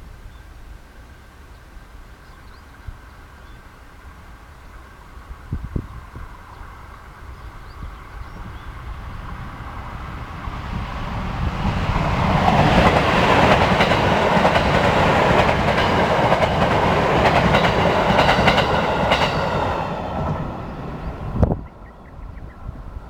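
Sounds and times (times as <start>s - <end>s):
electric train running past: 1.0s - 23.0s
wheels clacking over rail joints: 11.5s - 21.1s.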